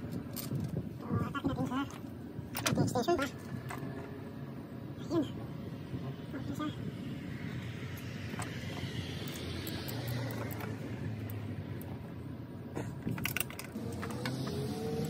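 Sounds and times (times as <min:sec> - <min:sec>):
engine hum: 0:03.2 - 0:15.0.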